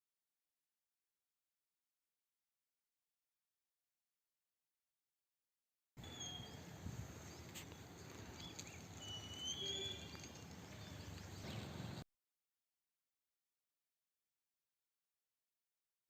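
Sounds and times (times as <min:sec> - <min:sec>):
bird whistled chirps: 0:06.0 - 0:06.7, 0:08.4 - 0:11.5.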